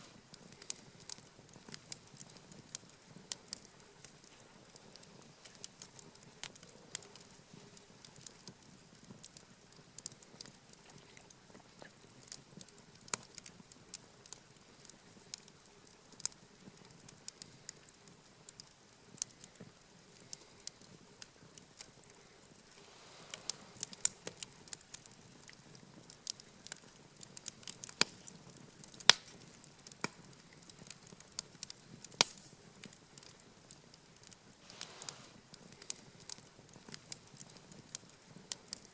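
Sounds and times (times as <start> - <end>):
campfire crackling: 0.0 - 38.9
fire popping and snapping: 0.0 - 38.9
low hiss of burning: 0.0 - 38.9.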